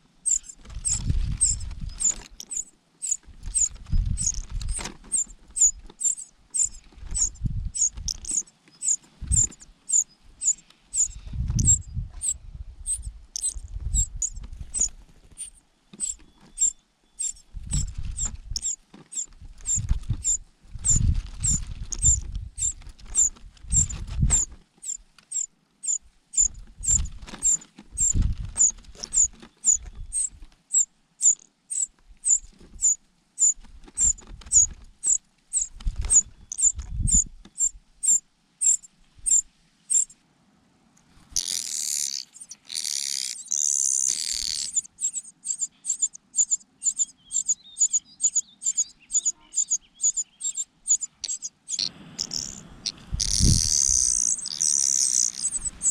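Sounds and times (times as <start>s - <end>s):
dull low thumps: 6.6s - 8.4s, 11.0s - 14.9s, 17.5s - 18.6s
chick begging with high cheeps: 41.4s - 55.9s.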